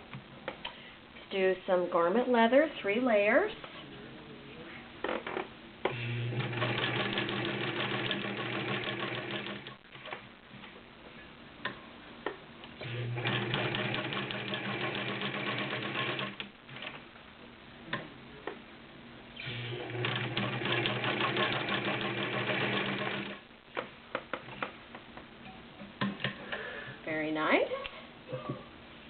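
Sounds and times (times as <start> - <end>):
sewing machine stitching: 5.9 - 10.2, 12.8 - 17.0, 19.4 - 23.4.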